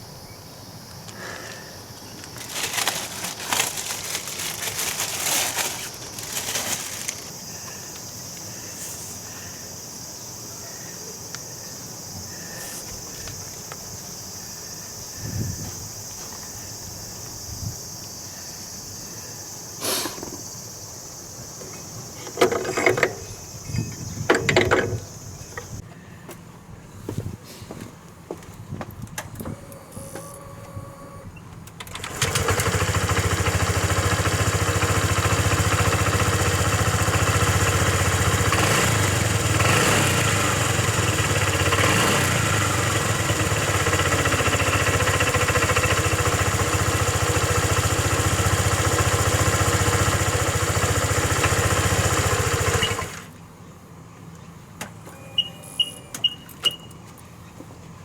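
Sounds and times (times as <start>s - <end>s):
scooter engine running: 31.8s - 53.4s.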